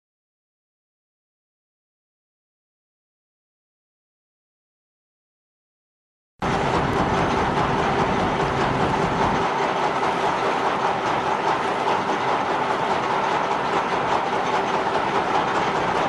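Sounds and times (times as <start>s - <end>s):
heavy machinery running: 6.4s - 16.0s.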